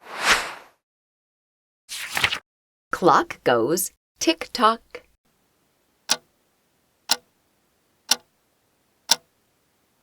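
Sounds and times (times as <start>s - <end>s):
clock ticking: 9.1s - 9.3s.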